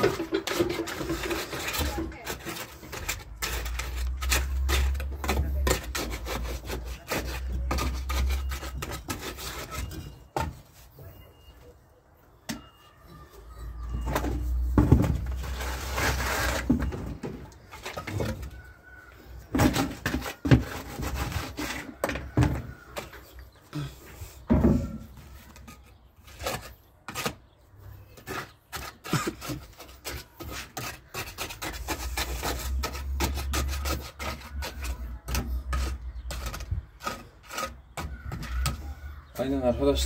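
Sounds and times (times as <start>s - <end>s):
gravel scraping and clattering: 0.0s - 10.3s, 14.0s - 18.7s.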